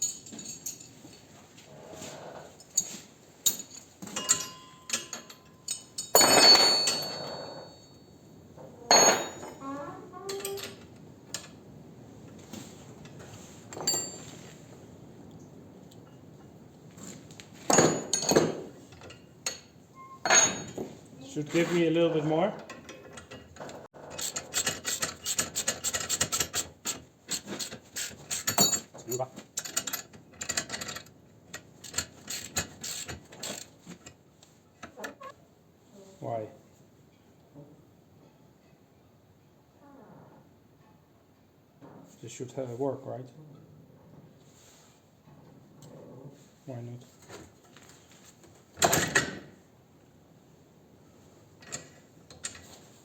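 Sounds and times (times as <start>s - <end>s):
metal tools clinking: 0.0s - 1.3s, 2.0s - 11.6s, 13.7s - 14.5s, 17.7s - 21.9s, 27.3s - 34.1s.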